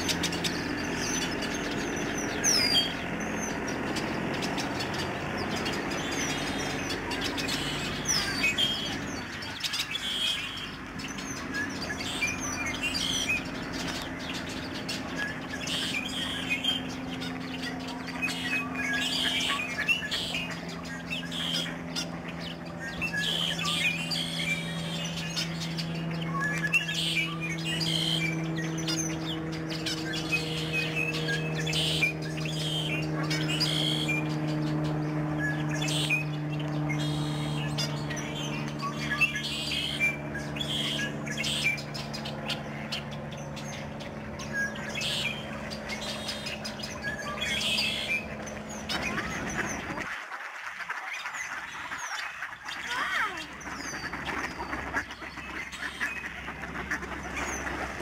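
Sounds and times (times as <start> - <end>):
small birds chirping: 0.0 - 50.1, 51.0 - 58.0
low engine drone: 0.0 - 50.2, 51.1 - 58.0.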